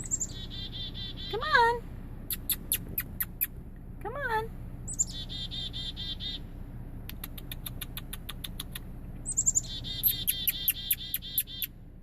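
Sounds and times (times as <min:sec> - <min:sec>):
bird begging chirps: 0:00.0 - 0:03.6, 0:04.8 - 0:06.6, 0:07.5 - 0:11.8.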